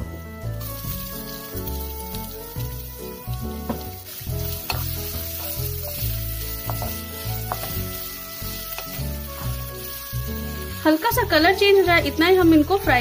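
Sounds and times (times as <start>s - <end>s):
background music with bass line: 0.0s - 13.0s
onion sizzling in hot oil: 0.0s - 13.0s
spatula knocking a pan: 3.6s - 8.0s.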